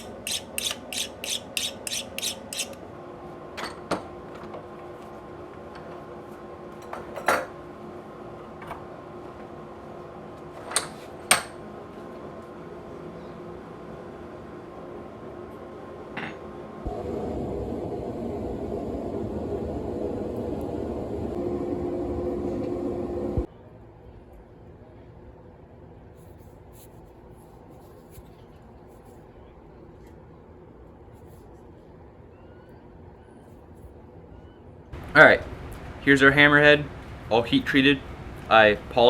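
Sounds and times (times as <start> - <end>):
faint steady hum: 16.7 - 39.0
steady rushing noise: 35.0 - 39.0.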